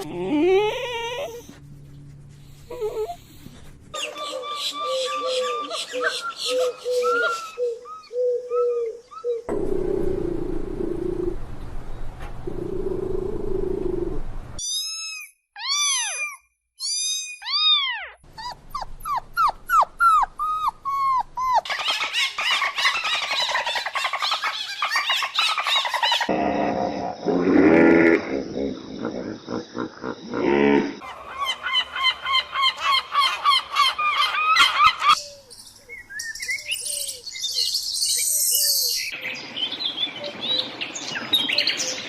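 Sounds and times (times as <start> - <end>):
animal calls: 2.6 - 11.4, 12.4 - 35.3.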